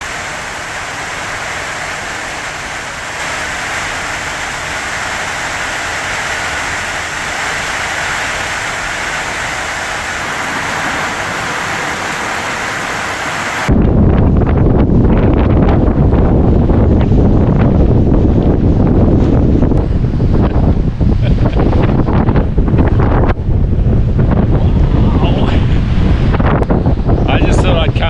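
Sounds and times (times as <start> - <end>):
heavy rain hissing: 0.0 - 13.7
wind buffeting microphone: 0.0 - 28.0.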